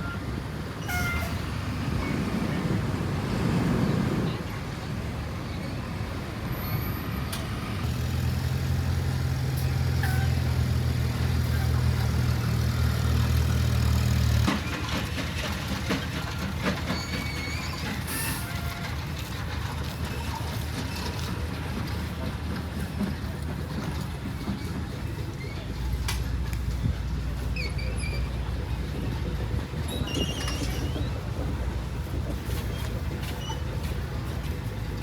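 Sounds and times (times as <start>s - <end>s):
faint squeaks or chirps: 16.9s - 18.8s, 27.5s - 28.6s, 29.8s - 31.4s, 32.6s - 33.8s.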